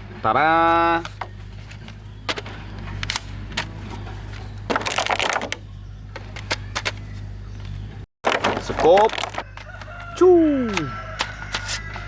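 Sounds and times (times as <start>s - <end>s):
toy gun rattling: 6.2s - 7.2s.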